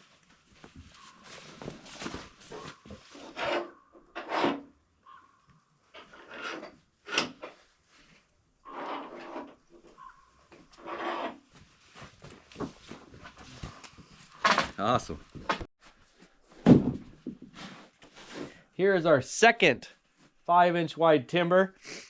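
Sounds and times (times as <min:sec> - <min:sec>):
wooden boards scraping: 0:01.8 - 0:04.7, 0:08.7 - 0:10.0, 0:10.6 - 0:11.5.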